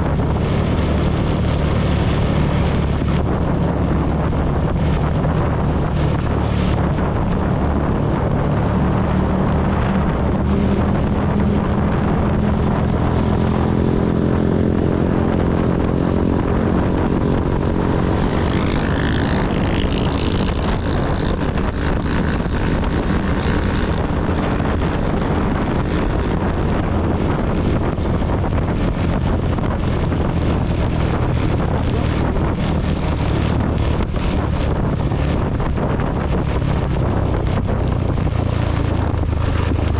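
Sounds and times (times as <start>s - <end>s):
heavy rain on microphone: 0.0s - 39.9s
motorcycle engine running: 0.0s - 39.9s.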